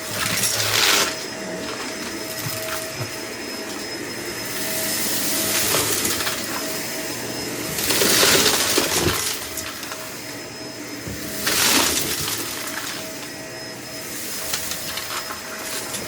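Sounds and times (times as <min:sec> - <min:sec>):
debris rattling through vacuum: 0:00.0 - 0:03.9, 0:04.9 - 0:06.8, 0:07.6 - 0:10.2, 0:11.0 - 0:13.4, 0:14.3 - 0:16.0
vacuum suction rushes: 0:00.0 - 0:15.8
vacuum cleaner motor whine: 0:00.0 - 0:16.0.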